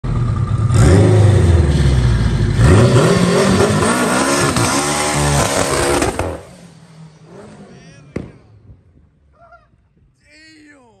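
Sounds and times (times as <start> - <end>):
turbocharged engine revving hard: 0.6 - 6.6.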